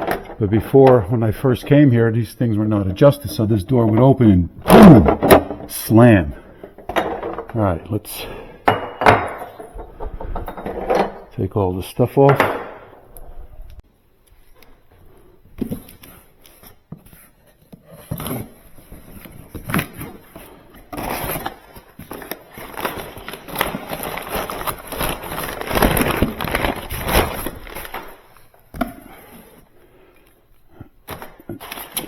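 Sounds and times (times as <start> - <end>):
rustling and crinkling: 14.3 - 29.7.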